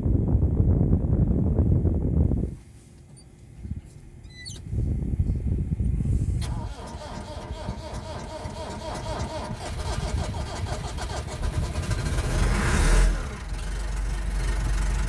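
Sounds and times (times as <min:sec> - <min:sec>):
diesel engine running: 0:04.9 - 0:15.0
engine starter cranking: 0:06.4 - 0:15.0.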